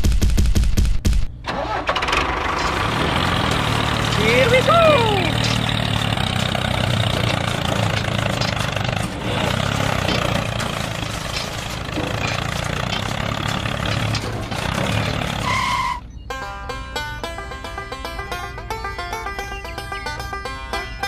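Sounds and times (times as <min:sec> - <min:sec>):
vehicle engine running: 0:00.3 - 0:21.0
music: 0:16.2 - 0:21.0.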